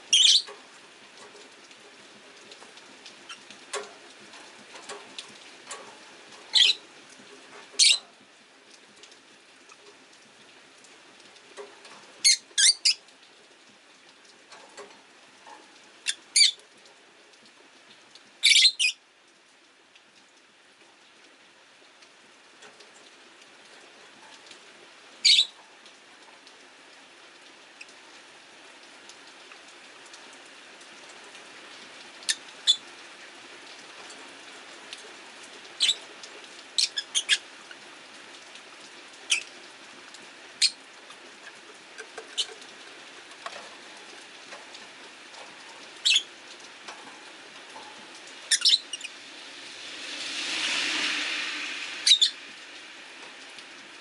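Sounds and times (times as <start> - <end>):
rain patter: 0.0 - 54.0
lovebirds chirping: 0.1 - 0.5, 48.5 - 49.1
car passing on wet street: 32.9 - 54.0.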